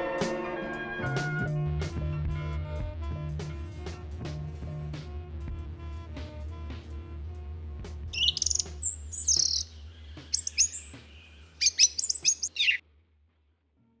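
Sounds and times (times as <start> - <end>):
birds chirping: 8.2 - 12.8.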